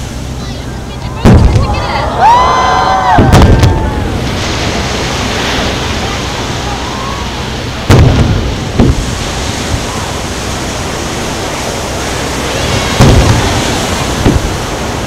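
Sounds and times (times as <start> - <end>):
surf: 0.0 - 15.0
sharp firework bang: 1.2 - 1.7, 3.1 - 3.8, 7.9 - 9.8, 12.8 - 14.6
firework shells booming: 1.2 - 1.8, 3.2 - 3.8, 7.8 - 9.9, 12.7 - 14.8
wind noise: 3.0 - 15.0.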